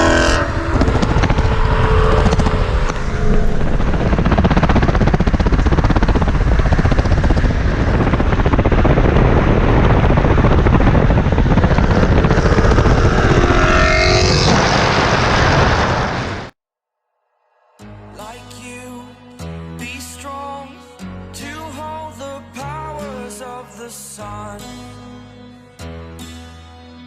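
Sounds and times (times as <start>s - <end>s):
car accelerating: 0.0s - 16.5s
car engines and road noise: 0.0s - 16.5s.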